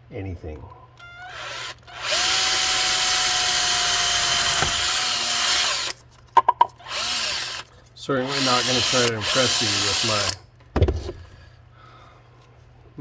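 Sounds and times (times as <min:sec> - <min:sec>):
power drill running: 0:01.1 - 0:06.0, 0:06.8 - 0:10.4.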